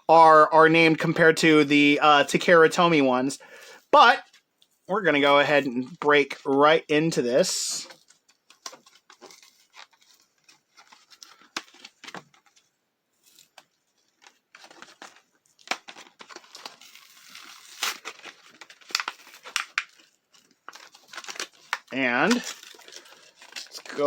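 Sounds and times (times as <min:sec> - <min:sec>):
packaging crinkling and tearing: 0:07.8 - 0:24.0.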